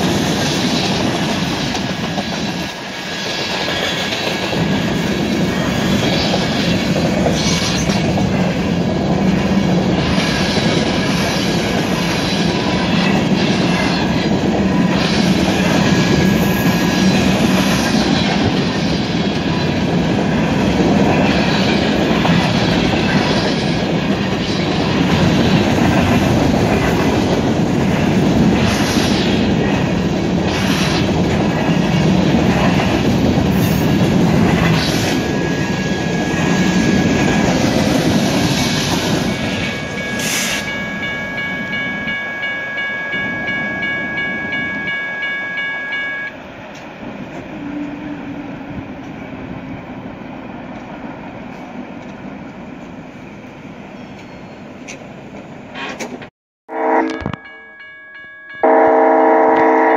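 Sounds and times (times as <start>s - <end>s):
freight train rumbling past: 0.0s - 57.0s
high steady tones: 35.2s - 46.4s
thin high squeal: 39.8s - 41.0s.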